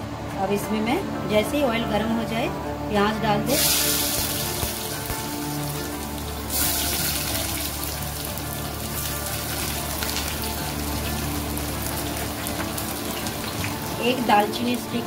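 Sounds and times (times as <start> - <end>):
onions sizzling in hot oil: 3.5 - 15.0.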